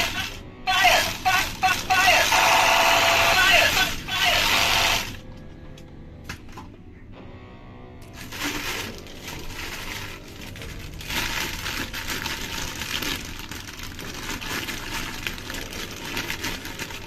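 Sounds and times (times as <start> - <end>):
plastic packaging crinkling: 0.0 - 2.5, 8.1 - 17.0.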